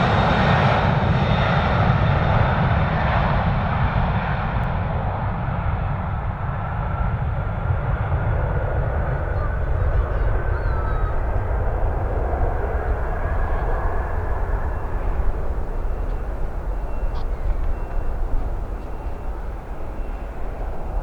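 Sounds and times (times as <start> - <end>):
jet airliner taking off: 0.0 - 21.0
wind rumble on microphone: 0.0 - 21.0.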